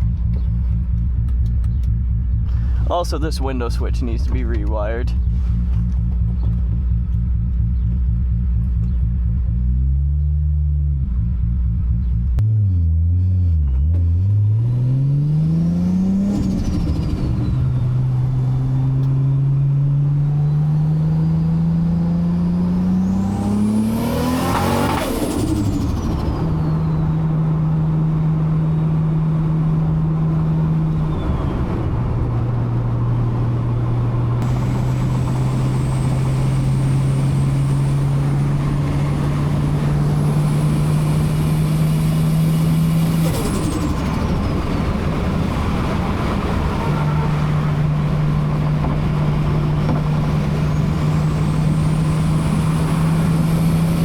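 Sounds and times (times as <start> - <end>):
car engine accelerating: 0.0 - 54.0
turbo whine: 15.9 - 54.0.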